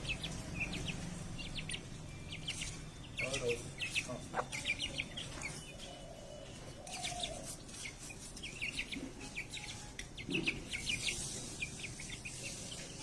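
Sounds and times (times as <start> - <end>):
birds chirping: 0.0 - 13.0
hen clucking: 3.2 - 5.5.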